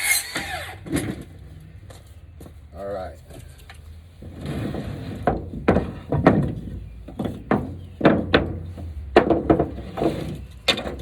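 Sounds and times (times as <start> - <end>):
wooden boards knocking: 5.1 - 11.0.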